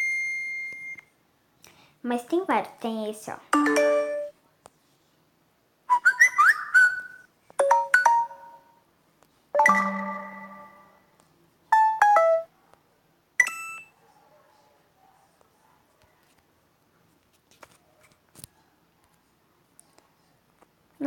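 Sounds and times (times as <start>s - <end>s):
phone notification chimes: 3.6s - 4.3s, 7.6s - 8.7s, 9.6s - 11.0s, 11.8s - 12.5s.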